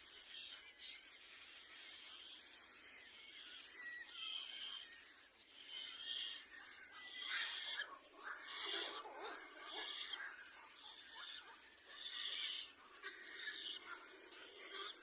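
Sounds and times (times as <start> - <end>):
raspy hissing bird calls: 0.0 - 15.0.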